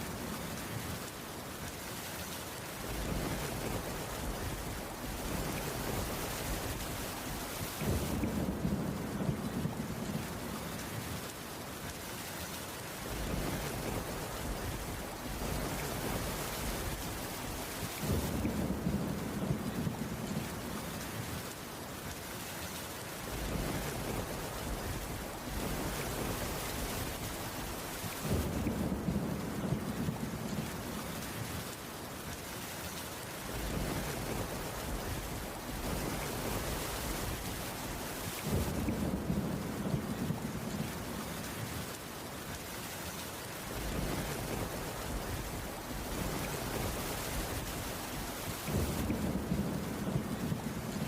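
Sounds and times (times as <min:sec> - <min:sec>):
heavy rain on wooden roof: 0:00.0 - 0:51.0
thunder rumble: 0:02.8 - 0:11.3, 0:13.0 - 0:21.4, 0:23.3 - 0:31.4, 0:33.4 - 0:41.7, 0:43.7 - 0:51.0.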